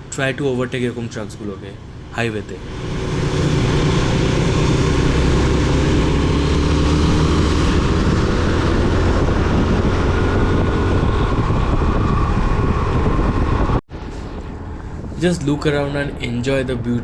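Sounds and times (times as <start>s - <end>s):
wind rushing over microphone: 1.9s - 17.0s
motorcycle engine running: 2.6s - 13.8s.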